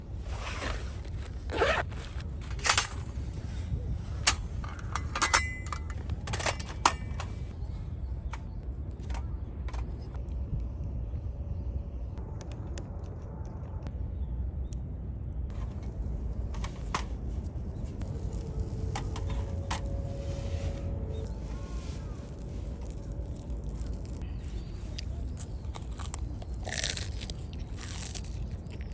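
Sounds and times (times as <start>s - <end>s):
steady low rumble: 0.0s - 28.9s
cooking gear scraping and clicking: 18.0s - 20.2s.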